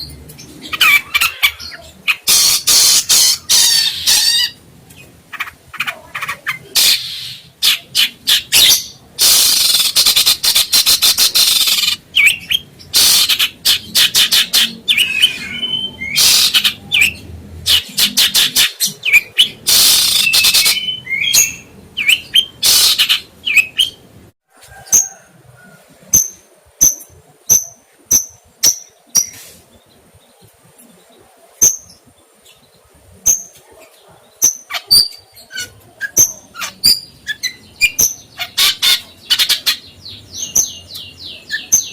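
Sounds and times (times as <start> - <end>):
bird rasping chatter: 0.6 - 4.6, 5.3 - 17.1, 22.4 - 24.0, 34.5 - 40.8
bird high chirps: 5.3 - 24.1, 26.2 - 41.9.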